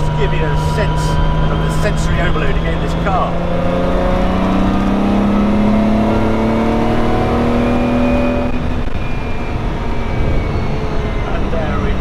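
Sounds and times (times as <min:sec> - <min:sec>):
engine revving hard: 0:00.0 - 0:08.7.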